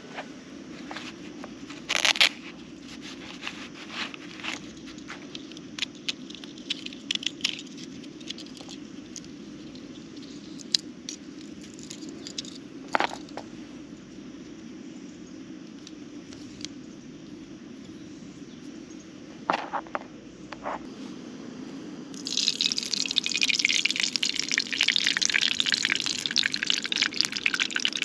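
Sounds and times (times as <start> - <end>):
objects being handled: 0.8 - 13.5
rain pattering: 22.2 - 28.0.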